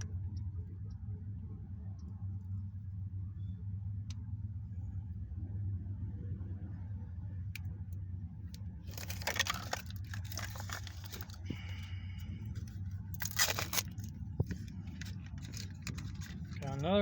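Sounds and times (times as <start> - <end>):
steady low hum: 0.0 - 17.0
plastic packaging rustling: 8.9 - 11.7, 12.6 - 16.8.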